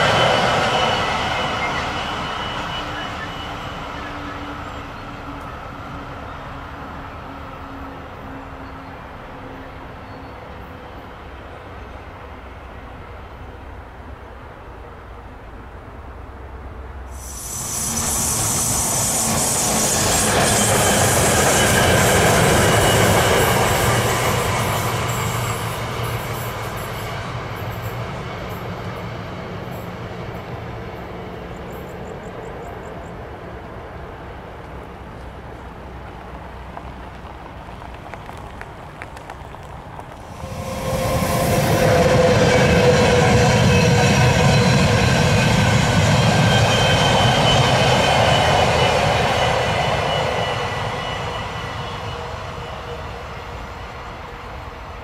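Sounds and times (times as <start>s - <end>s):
train passing with wheel rumble: 0.0s - 55.0s
loud rushing noise: 17.1s - 25.9s, 40.2s - 52.6s.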